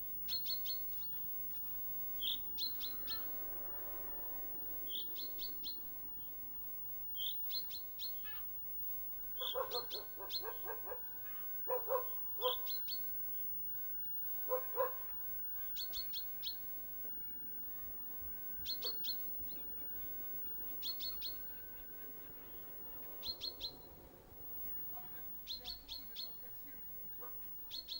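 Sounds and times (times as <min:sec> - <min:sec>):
songbird chirping: 0:00.0 - 0:27.9
faint high tone: 0:02.3 - 0:07.4
dog barking: 0:09.4 - 0:12.8, 0:14.4 - 0:15.2, 0:18.7 - 0:19.2, 0:27.1 - 0:27.6.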